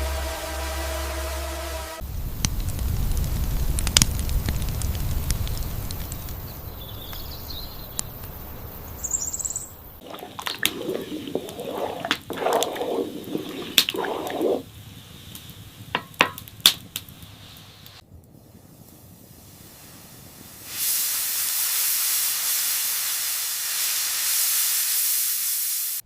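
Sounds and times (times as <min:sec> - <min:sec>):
high bird chirp: 0:09.0 - 0:09.8.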